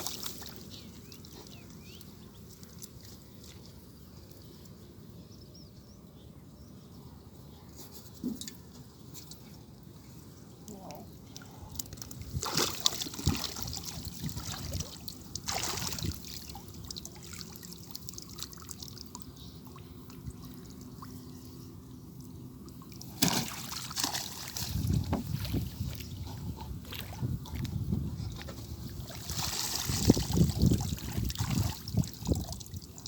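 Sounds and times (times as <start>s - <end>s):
water splashes: 0.0s - 1.5s, 12.0s - 21.3s, 22.6s - 25.8s, 28.9s - 33.0s
shallow water sloshing: 0.0s - 3.6s, 11.8s - 21.5s, 22.6s - 26.0s, 28.6s - 33.0s.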